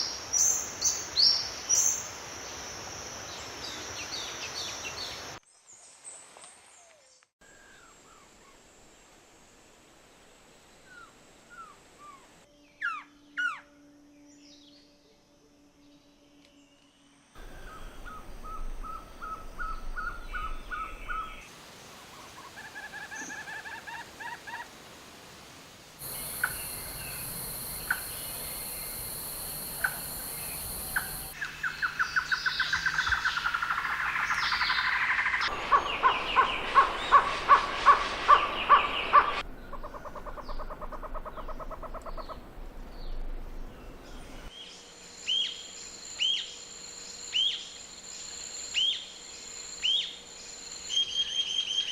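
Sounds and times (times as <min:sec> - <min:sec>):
wild birds calling and singing: 0:17.4 - 0:21.5, 0:26.0 - 0:50.2.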